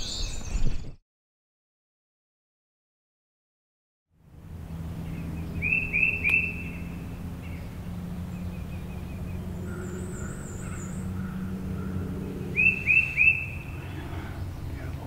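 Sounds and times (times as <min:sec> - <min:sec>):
songbirds singing: 0:00.0 - 0:01.0, 0:04.3 - 0:15.0
steady low hum: 0:04.2 - 0:15.0
high wavering bird trill: 0:05.0 - 0:14.7.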